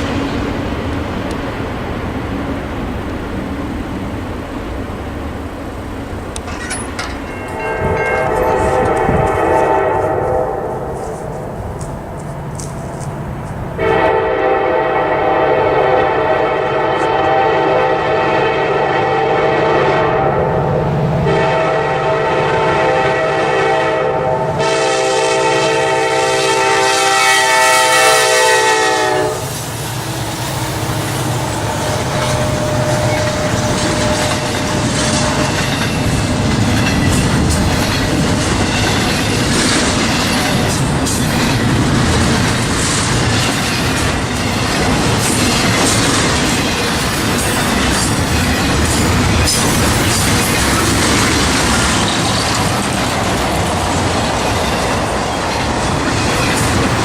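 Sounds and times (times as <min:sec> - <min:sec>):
train wheels on rails: 0:00.0 - 0:57.0
clickety-clack over rail joints: 0:06.3 - 0:09.8, 0:11.0 - 0:14.0, 0:29.6 - 0:57.0
locomotive horn blasts: 0:07.6 - 0:11.1, 0:13.8 - 0:20.6, 0:21.2 - 0:29.6.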